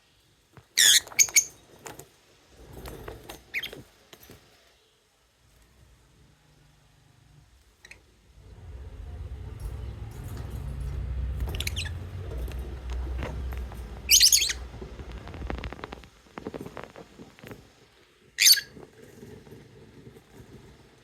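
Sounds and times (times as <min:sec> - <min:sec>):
low rumble: 0:08.1 - 0:16.3
lovebirds chirping: 0:11.4 - 0:15.4.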